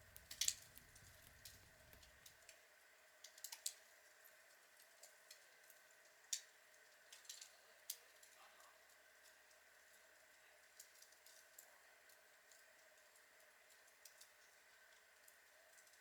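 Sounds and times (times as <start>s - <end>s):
log fire crackling and popping: 0.0s - 2.6s.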